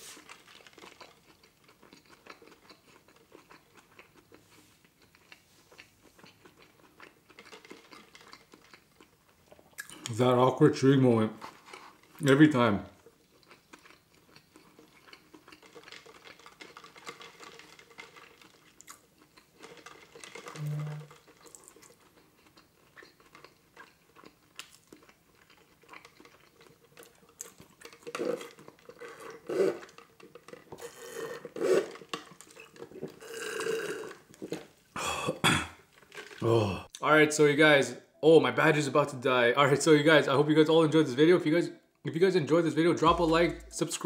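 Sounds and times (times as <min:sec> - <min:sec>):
man chewing: 0:00.0 - 0:10.1, 0:13.0 - 0:37.0
slurping through a straw: 0:28.0 - 0:34.2.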